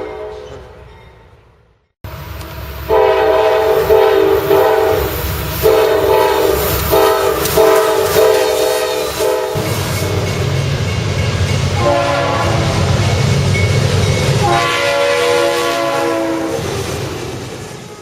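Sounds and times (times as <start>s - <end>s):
train rumble: 0.0s - 18.0s
locomotive air horn blasts: 2.3s - 10.4s, 11.8s - 13.1s, 14.4s - 16.8s.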